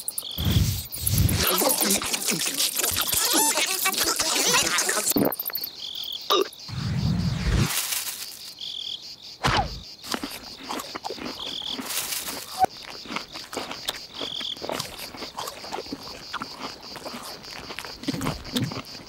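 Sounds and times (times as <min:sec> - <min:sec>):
insect-like buzzing: 0:00.0 - 0:10.5
falling swoops: 0:06.7 - 0:07.8.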